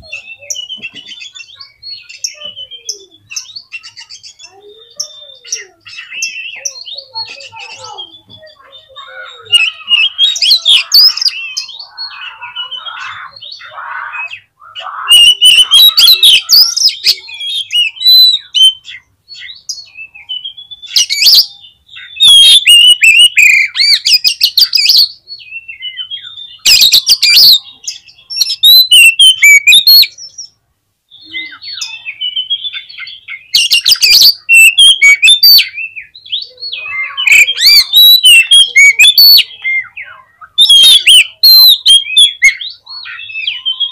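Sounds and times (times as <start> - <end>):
songbird whistled phrases: 0.0 - 43.9
bird harsh chattering: 0.1 - 19.5, 20.9 - 25.0, 28.4 - 30.1, 31.3 - 35.8, 36.4 - 43.9.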